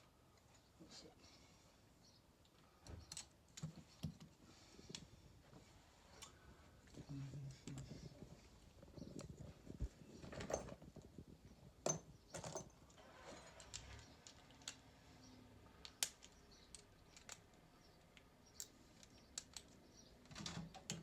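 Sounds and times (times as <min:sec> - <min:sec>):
metal tools clinking: 0:11.8 - 0:14.4.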